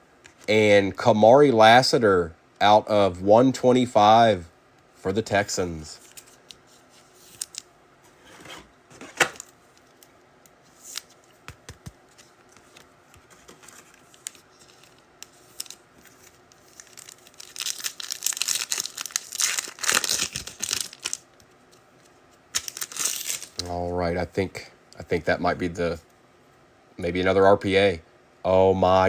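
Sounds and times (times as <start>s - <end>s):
foil wrapper tearing and crinkling: 13.6s - 21.2s, 22.5s - 23.7s.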